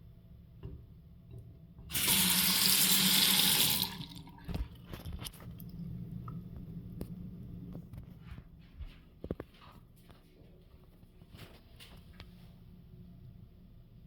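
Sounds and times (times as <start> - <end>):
water running from a tap: 1.9 - 4.6.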